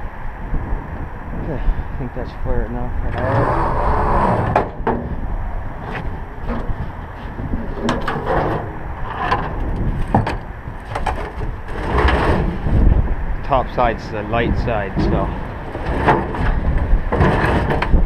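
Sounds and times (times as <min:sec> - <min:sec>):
wind on microphone: 0:00.0 - 0:18.0
metal knocks and scrapes: 0:05.8 - 0:13.0, 0:14.9 - 0:18.0.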